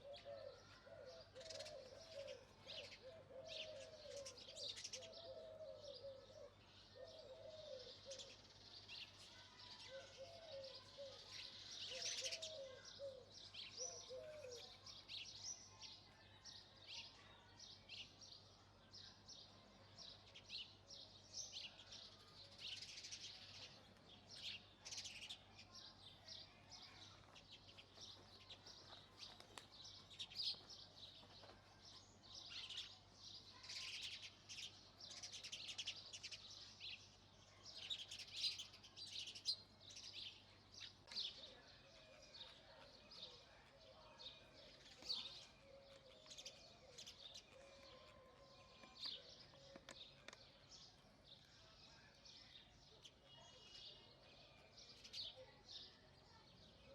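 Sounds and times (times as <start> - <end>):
sparrows chirping: 0.0 - 56.9.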